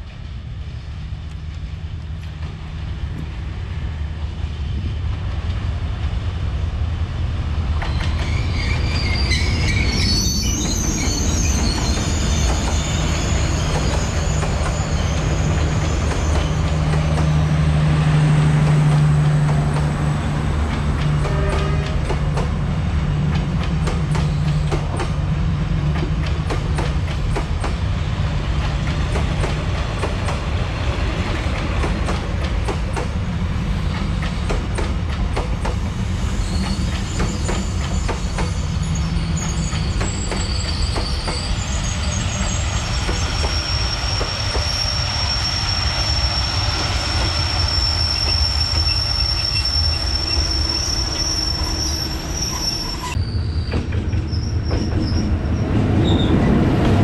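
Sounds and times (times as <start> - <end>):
train rumbling past: 0.0 - 57.0
wheel squeal: 7.8 - 17.4, 36.3 - 56.5
train wheels clicking over rail: 20.7 - 22.6, 23.2 - 25.2, 25.9 - 27.9, 28.6 - 30.5, 31.4 - 33.2, 33.8 - 35.9.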